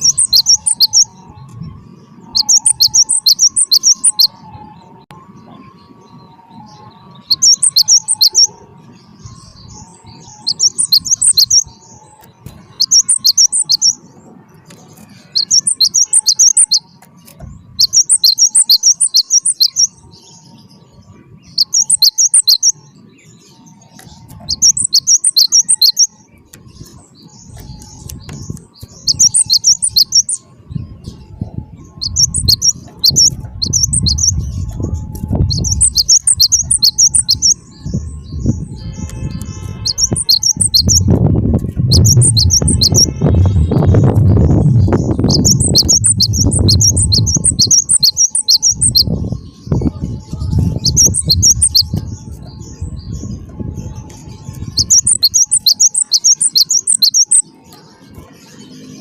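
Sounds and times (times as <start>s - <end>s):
bird singing sharp chirps: 0.0s - 59.0s
low rumbling noise: 0.0s - 59.0s.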